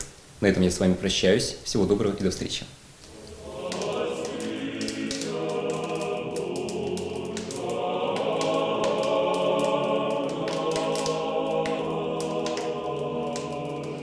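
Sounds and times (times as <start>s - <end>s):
sharp clicks: 3.0s - 14.0s
choir singing sustained chords: 3.1s - 14.0s.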